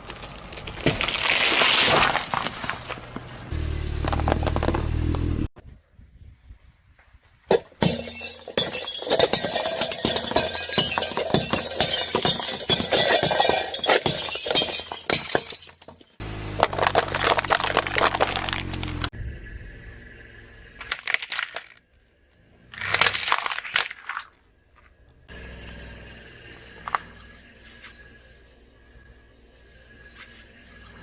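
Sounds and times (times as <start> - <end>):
crackling and breaking: 0.0 - 3.3, 8.1 - 19.1, 20.8 - 22.0, 22.7 - 24.4.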